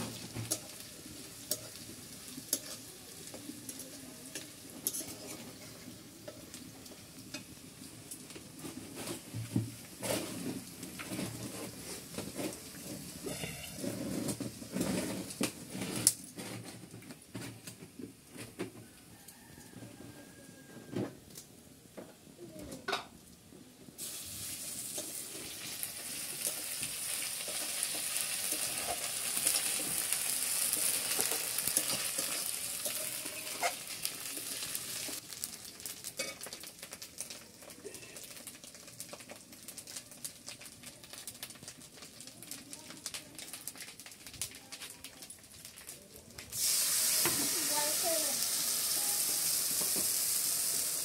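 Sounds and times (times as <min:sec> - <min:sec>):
metal spatula scraping a wok: 0:00.0 - 0:03.0, 0:03.7 - 0:06.4, 0:10.0 - 0:16.8, 0:26.4 - 0:35.2
food frying in hot oil: 0:00.0 - 0:18.2, 0:23.3 - 0:51.0.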